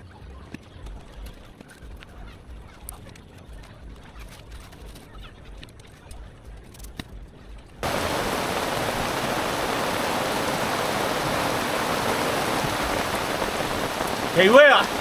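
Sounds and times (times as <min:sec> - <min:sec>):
steady rain: 0:07.8 - 0:15.0.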